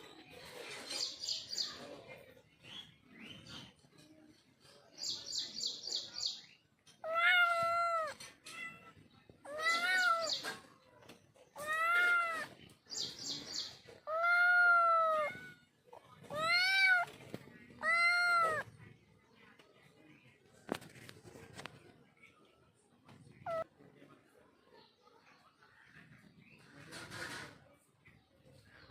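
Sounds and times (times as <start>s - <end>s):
cat meowing: 7.0s - 10.5s, 11.6s - 12.6s, 14.1s - 15.7s, 16.3s - 18.7s, 23.4s - 23.7s.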